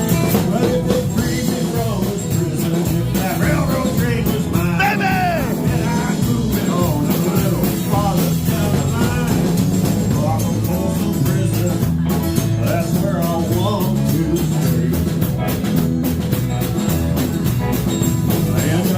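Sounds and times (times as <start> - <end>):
person singing: 0.0 - 12.0, 12.6 - 15.4
drum beat: 0.0 - 18.9
guitar: 0.0 - 18.9.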